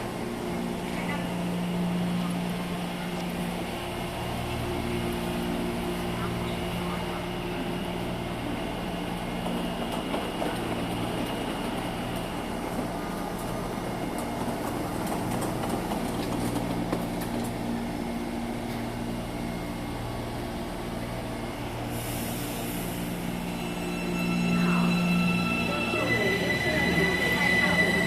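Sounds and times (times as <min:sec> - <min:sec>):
electric train hum: 0:00.0 - 0:28.0.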